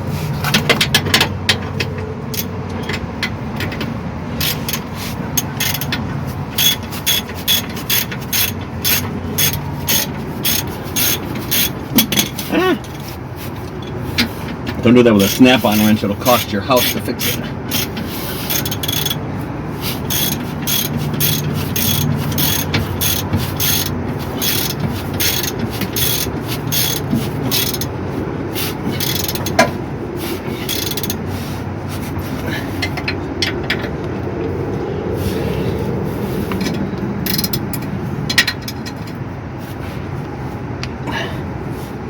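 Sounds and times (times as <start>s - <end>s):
ratchet wrench clicking: 2.3s - 3.0s, 4.4s - 14.0s, 15.3s - 19.2s, 19.8s - 27.9s, 28.9s - 29.7s, 30.4s - 31.2s, 37.2s - 39.2s.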